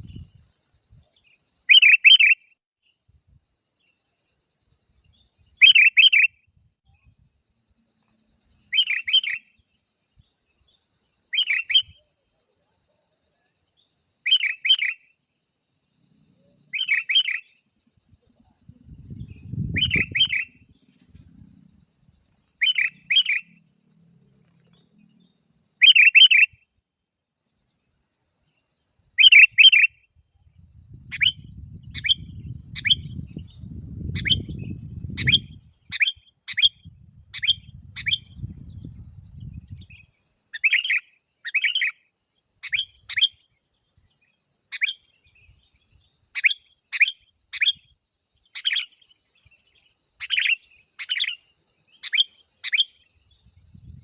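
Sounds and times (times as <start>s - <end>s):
bird sharp single chirps: 1.2s - 2.6s, 5.1s - 7.1s, 8.6s - 10.3s, 11.3s - 12.1s, 14.3s - 15.1s, 16.7s - 17.6s, 18.4s - 21.5s, 22.6s - 23.6s, 25.8s - 26.6s, 29.2s - 30.0s, 30.9s - 42.0s, 44.7s - 54.0s
low rumble: 18.7s - 19.8s.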